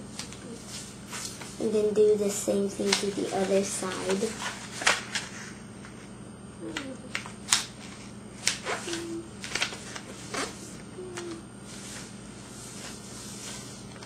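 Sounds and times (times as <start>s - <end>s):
low steady hum: 0.0s - 14.0s
paper crackling and rustling: 2.6s - 6.0s, 6.7s - 12.1s.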